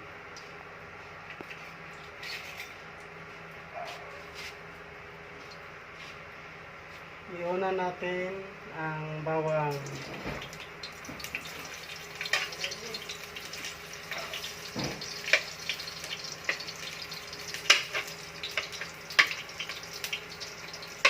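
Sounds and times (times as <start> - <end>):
garlic sizzling in hot oil: 9.7 - 21.0.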